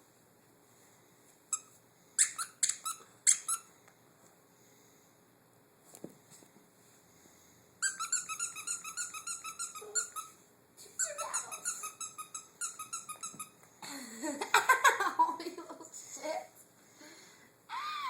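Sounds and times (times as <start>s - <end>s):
squeaky dog toy squeaking: 1.5s - 3.7s, 7.8s - 10.4s, 11.0s - 13.6s.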